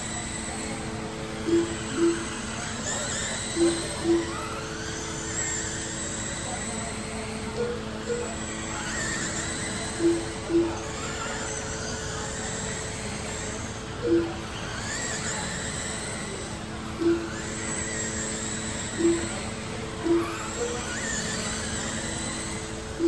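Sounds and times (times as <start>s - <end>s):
electric toy car motors whining: 0.0s - 23.0s
steady low hum: 0.0s - 23.0s
short beeps: 0.8s - 2.7s, 3.4s - 4.7s, 9.1s - 11.0s, 14.0s - 14.4s, 16.0s - 18.2s, 18.8s - 20.8s.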